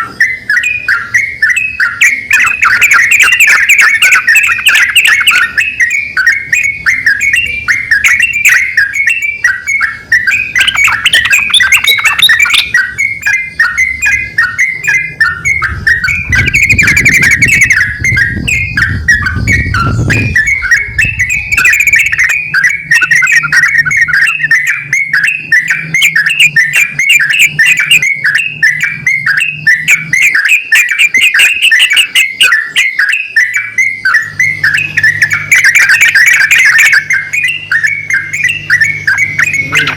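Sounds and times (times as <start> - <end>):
bulbuls calling: 0.0 - 39.9
low hum: 2.1 - 32.2.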